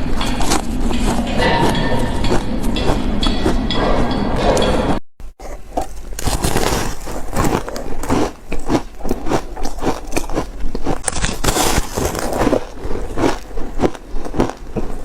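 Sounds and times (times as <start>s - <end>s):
ice chunks crunching when chewed: 5.4s - 15.0s.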